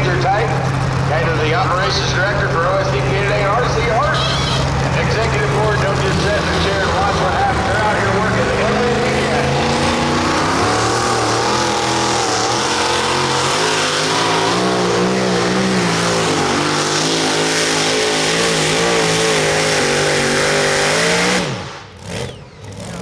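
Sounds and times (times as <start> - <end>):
pulling truck engine revving: 0.0 - 23.0.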